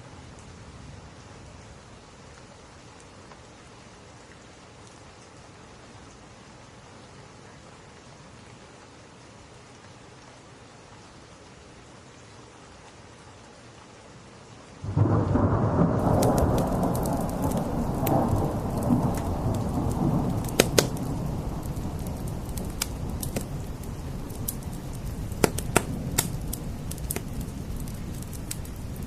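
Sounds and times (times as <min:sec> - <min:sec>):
steady rain: 0:00.0 - 0:29.0
thunder clap and rumble: 0:14.9 - 0:29.0
wood fire crackling and popping: 0:16.0 - 0:29.0.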